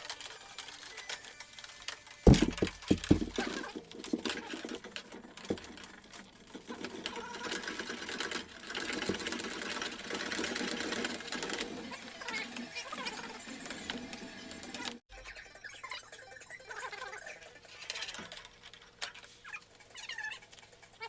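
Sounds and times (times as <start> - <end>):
clatter of small clicks and rattles: 0.0 - 15.0, 17.4 - 21.0
sharp knocks: 2.3 - 3.5.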